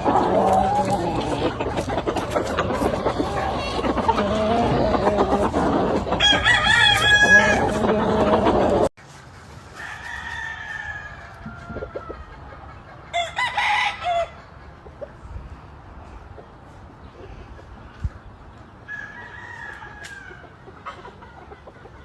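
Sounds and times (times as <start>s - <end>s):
roosters crowing: 0.0s - 8.9s, 9.7s - 12.5s, 13.1s - 14.6s, 18.8s - 20.7s
chickens clucking: 0.0s - 9.8s, 11.0s - 22.0s.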